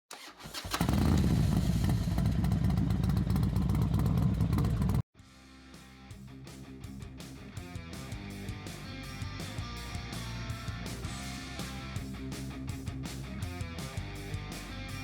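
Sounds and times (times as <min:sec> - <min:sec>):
motorcycle engine running rough: 0:00.6 - 0:05.0
quiet guitar music: 0:05.4 - 0:15.0.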